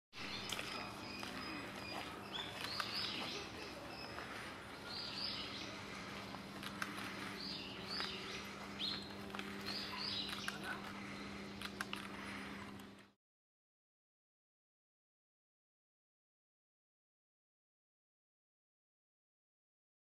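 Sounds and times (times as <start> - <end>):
birds chirping: 0.2 - 13.1
steady low hum: 0.2 - 13.2.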